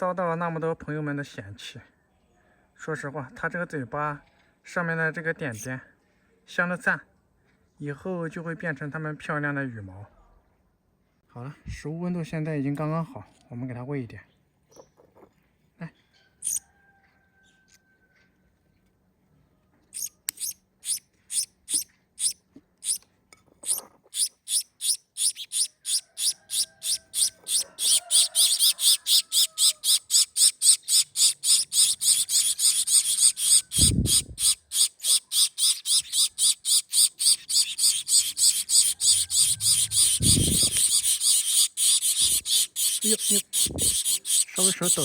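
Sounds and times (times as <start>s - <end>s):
nestlings begging with raspy calls: 16.4s - 16.6s, 23.7s - 45.0s.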